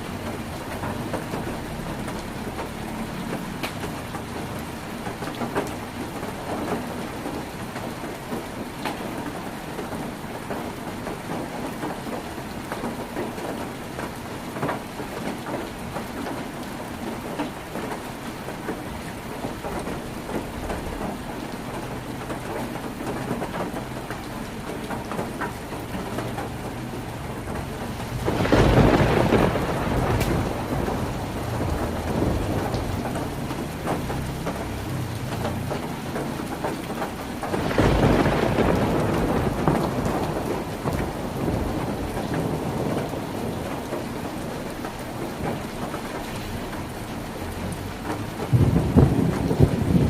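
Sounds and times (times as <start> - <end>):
heavy rain on a tin roof: 0.0 - 50.0
low rumble of thunder: 23.2 - 46.8, 47.6 - 50.0.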